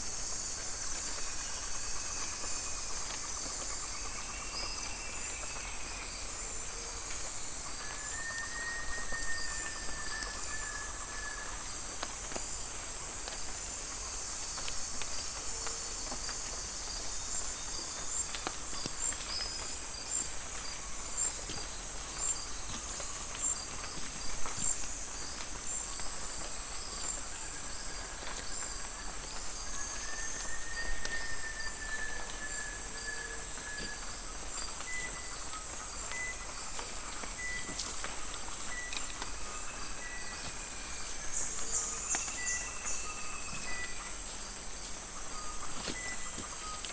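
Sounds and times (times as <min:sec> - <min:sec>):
insect chorus pulsing: 0:00.0 - 0:46.9
long whistled calls: 0:07.7 - 0:11.7, 0:28.9 - 0:44.5.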